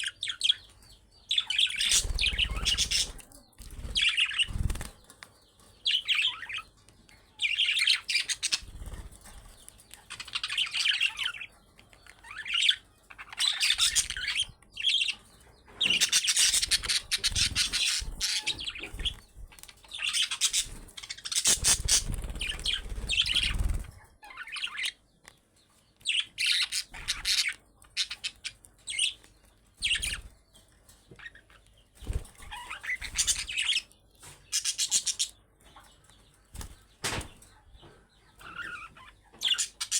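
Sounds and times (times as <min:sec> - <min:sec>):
budgerigars chattering and chirping: 0:00.0 - 0:25.2, 0:26.0 - 0:39.9
wing flutters: 0:01.8 - 0:05.2, 0:15.9 - 0:24.1, 0:32.0 - 0:33.7.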